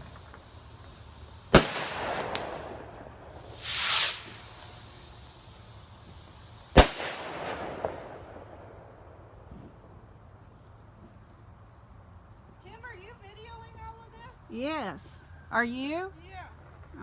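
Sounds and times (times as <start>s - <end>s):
high hissing rush: 0.0s - 9.4s
fireworks bangs with echo: 0.0s - 10.0s
small firework crack: 0.0s - 10.6s.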